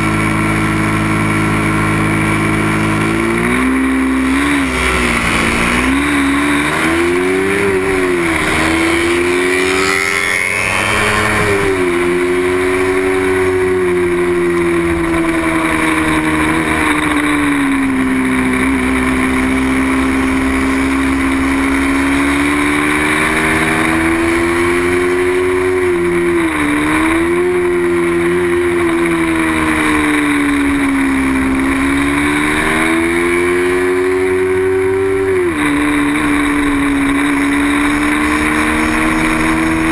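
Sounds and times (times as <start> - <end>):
racing motorcycle engine revving: 0.0 - 39.9.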